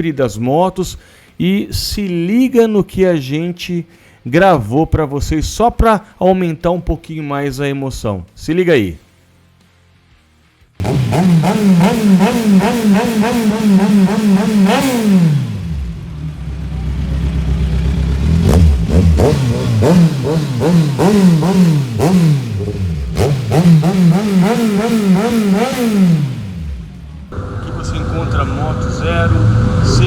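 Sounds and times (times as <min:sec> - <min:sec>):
motorcycle engine revving: 0:10.8 - 0:30.0.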